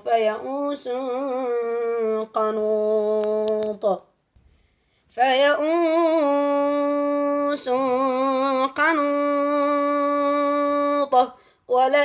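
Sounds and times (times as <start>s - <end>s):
man chanting melodically: 5.4s - 12.0s.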